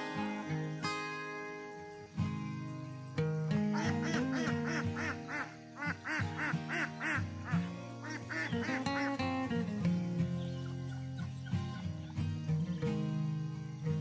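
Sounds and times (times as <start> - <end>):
acoustic guitar music: 0.0 - 14.0
duck quacking: 3.7 - 9.4.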